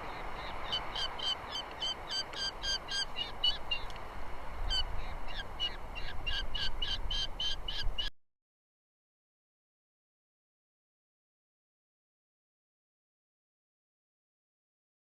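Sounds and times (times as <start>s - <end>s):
bird chirping calls: 0.0s - 4.0s, 4.6s - 8.1s.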